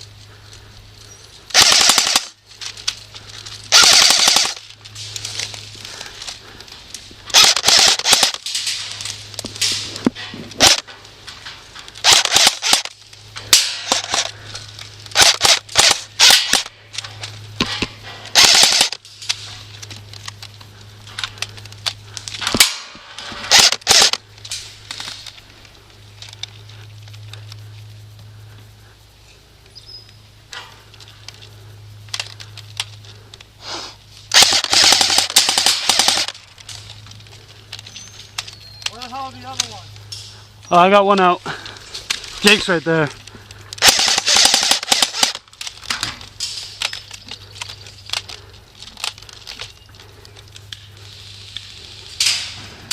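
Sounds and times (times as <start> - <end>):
airsoft guns firing: 1.5 - 2.4, 3.7 - 4.7, 7.3 - 9.0, 10.6 - 10.9, 12.0 - 14.4, 15.1 - 16.8, 17.6 - 19.0, 22.4 - 24.2, 34.3 - 36.4, 43.8 - 46.1.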